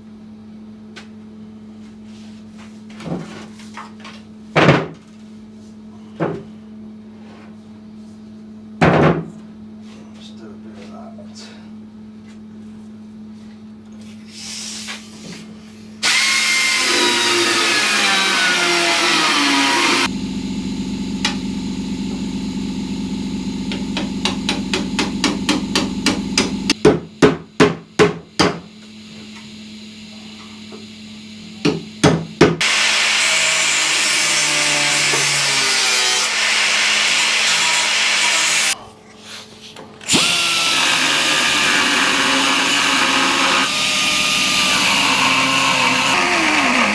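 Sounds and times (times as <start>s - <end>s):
loud knocks on metal: 8.8s - 9.3s
power tool whining on metal: 16.0s - 26.8s, 32.6s - 38.8s, 40.0s - 46.9s.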